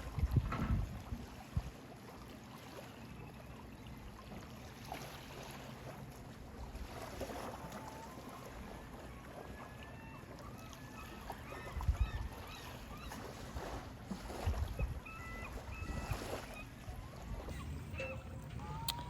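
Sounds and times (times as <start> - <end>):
wind rumbling on microphone: 0.0 - 1.7, 14.3 - 19.0
faint high calls: 15.0 - 19.0.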